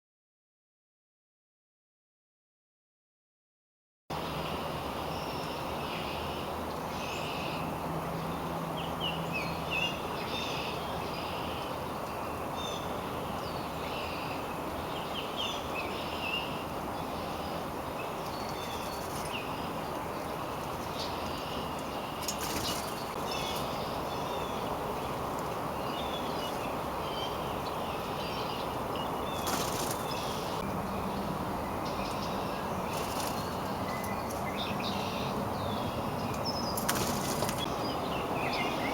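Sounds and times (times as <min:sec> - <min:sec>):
steady low background noise: 0:04.1 - 0:38.9
wild birds chirping: 0:04.3 - 0:38.9.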